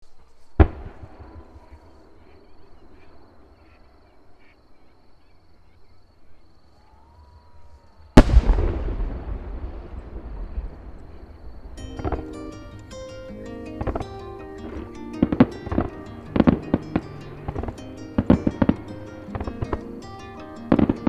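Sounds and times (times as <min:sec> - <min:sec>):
fireworks bursting: 0:00.6 - 0:02.2, 0:08.2 - 0:21.0.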